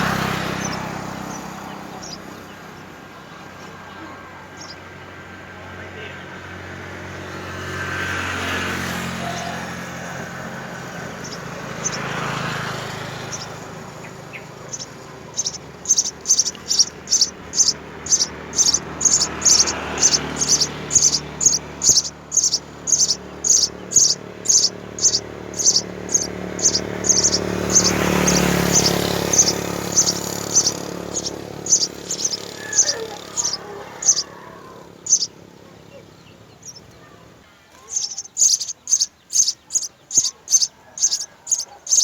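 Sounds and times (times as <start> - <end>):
sparrow chirping: 0.0 - 7.5, 9.0 - 42.0
rushing background noise: 8.7 - 42.0.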